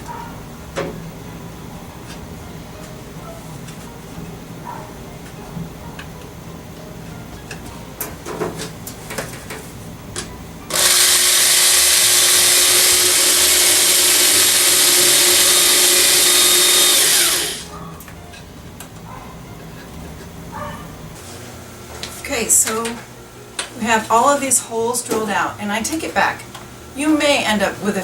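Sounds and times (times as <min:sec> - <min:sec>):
power drill drilling: 0:10.7 - 0:17.7.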